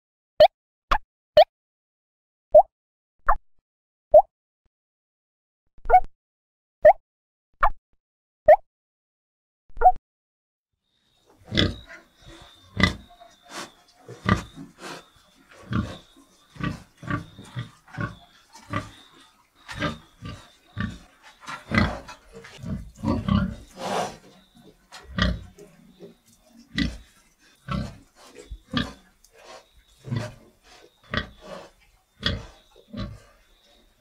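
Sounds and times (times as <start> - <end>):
animal grunting: 11.4 - 24.3, 25.0 - 25.7, 26.7 - 33.4.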